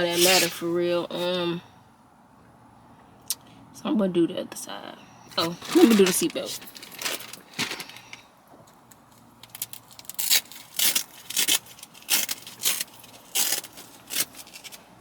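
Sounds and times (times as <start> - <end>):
fabric scraping and rustling: 0.0 - 1.4, 5.4 - 8.2.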